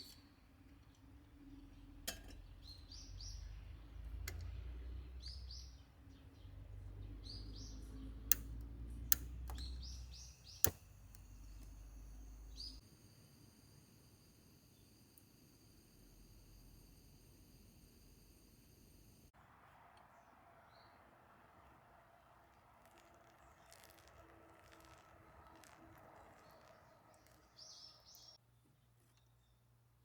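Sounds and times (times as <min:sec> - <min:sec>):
small birds chirping: 0:00.0 - 0:12.8, 0:22.4 - 0:29.7
sharp clicks: 0:08.2 - 0:12.8
high-pitched multi-tone whine: 0:09.5 - 0:19.3.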